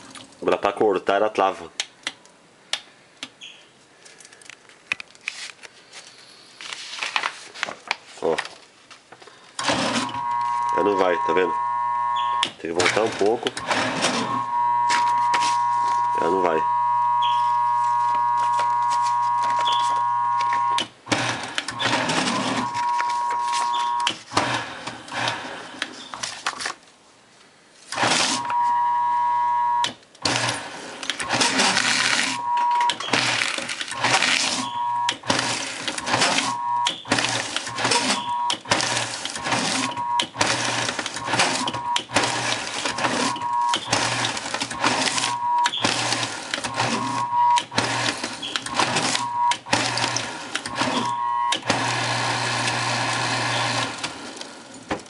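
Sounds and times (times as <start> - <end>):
paper shredder motor whining: 9.6 - 25.9, 28.0 - 55.0.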